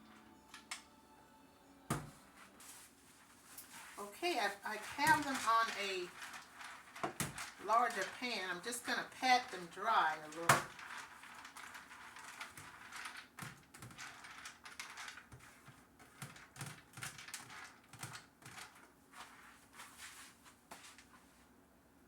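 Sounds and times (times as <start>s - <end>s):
seeds patted dry on pan: 3.4s - 13.8s.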